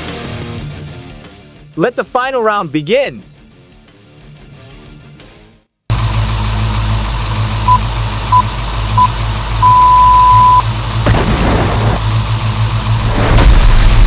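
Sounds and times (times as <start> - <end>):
monster truck engine rumbling: 5.9 - 14.0
countdown beeps: 7.7 - 10.6.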